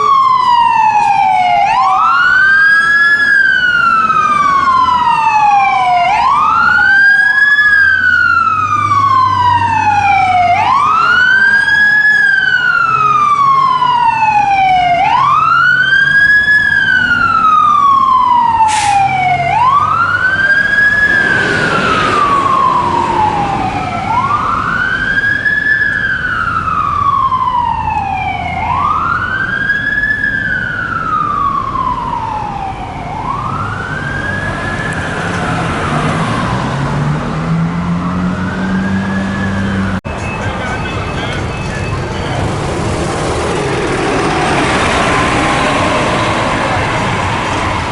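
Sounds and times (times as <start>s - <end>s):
siren wailing: 0.0s - 42.6s, 43.4s - 47.9s
truck engine rumble: 0.0s - 47.9s
air hiss: 18.7s - 19.1s.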